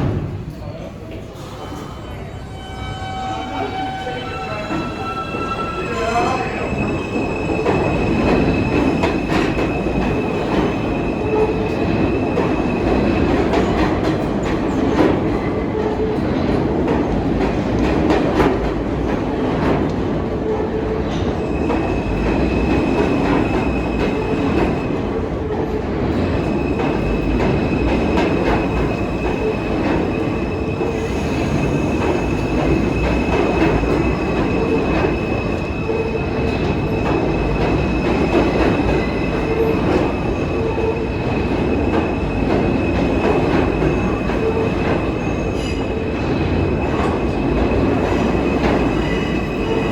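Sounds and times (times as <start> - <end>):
subway train rumbling on tracks: 0.0 - 49.9.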